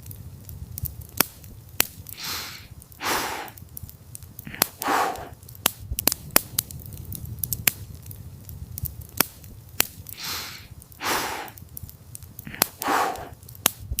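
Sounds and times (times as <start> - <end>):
campfire crackling and popping: 0.0 - 14.0
dog breathing heavily: 4.5 - 5.4, 12.4 - 13.4.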